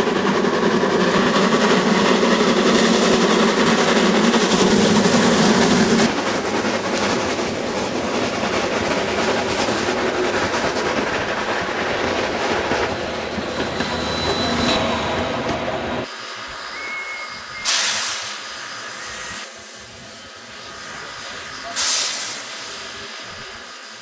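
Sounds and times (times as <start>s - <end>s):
steam train wheels clattering: 0.0s - 15.6s, 16.4s - 19.2s, 21.3s - 24.0s
steam hissing: 16.0s - 24.0s.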